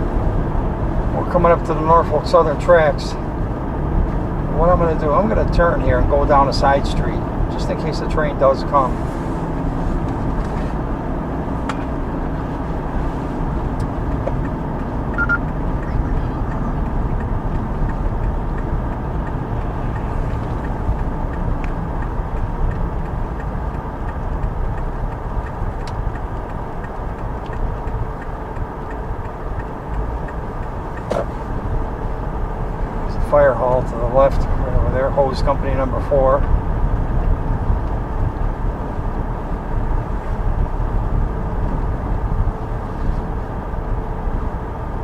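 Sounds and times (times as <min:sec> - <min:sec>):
car road and engine noise: 0:00.0 - 0:45.0
faint ticks: 0:16.5 - 0:31.4.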